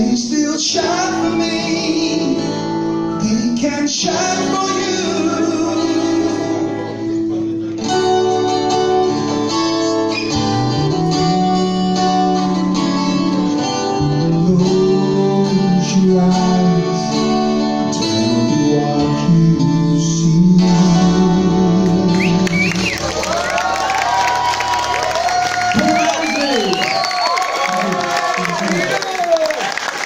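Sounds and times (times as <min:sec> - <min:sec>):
low bass line: 0:05.4 - 0:23.2.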